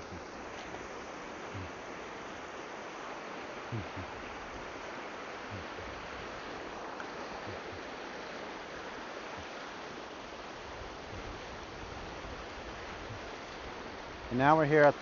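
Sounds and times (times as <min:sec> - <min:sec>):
river rushing over rocks: 0:00.0 - 0:15.0.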